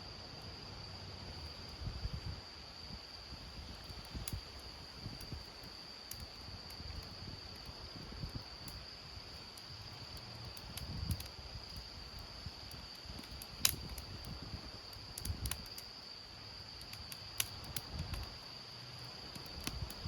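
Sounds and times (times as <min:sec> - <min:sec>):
wind gusts rumbling on microphone: 0:01.6 - 0:09.3, 0:10.4 - 0:15.7, 0:17.6 - 0:18.4.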